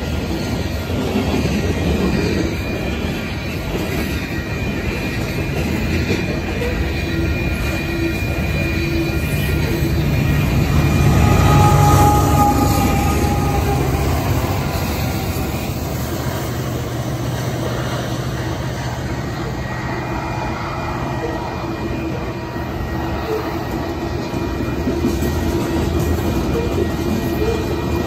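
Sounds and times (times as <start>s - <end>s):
diesel locomotive engines: 0.0s - 28.0s
hopper cars rolling on rails: 0.0s - 28.0s.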